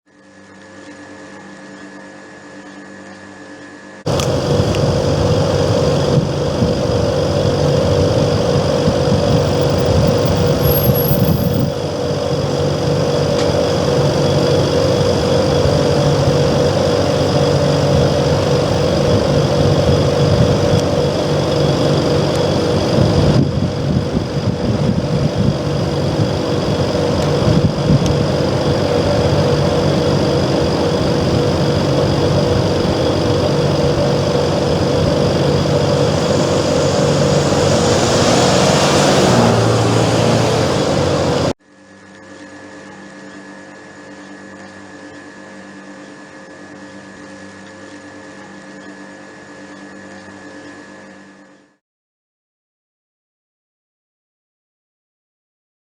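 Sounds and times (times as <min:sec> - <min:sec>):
air conditioner unit humming: 0:04.0 - 0:10.4, 0:11.6 - 0:39.1
high whining tones: 0:04.0 - 0:41.6.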